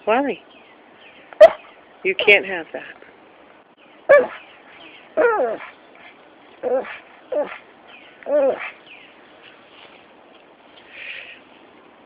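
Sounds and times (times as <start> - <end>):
dog whining: 5.2 - 5.7, 6.6 - 7.6, 8.2 - 8.8.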